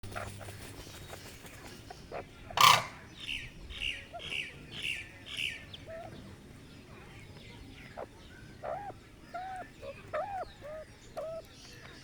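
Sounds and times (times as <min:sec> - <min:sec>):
bird harsh burst: 0:02.6 - 0:03.0.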